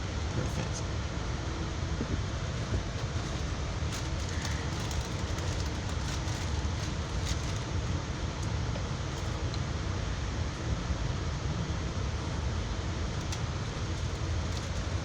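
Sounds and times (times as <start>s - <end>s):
train low rumble inside car: 0.0s - 15.0s
faint clicks and rattles: 2.6s - 9.6s, 13.1s - 15.0s.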